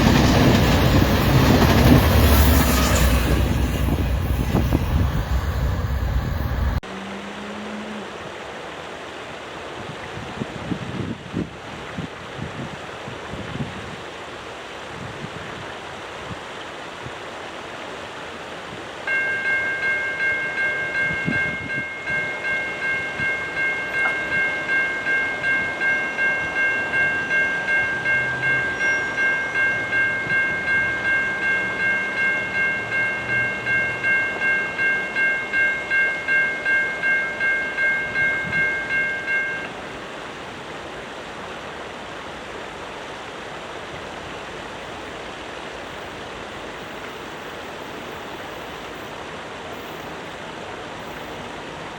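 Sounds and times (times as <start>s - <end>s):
railroad crossing bell ringing: 0.0s - 6.8s, 19.1s - 40.0s
outdoor background noise: 0.0s - 51.9s.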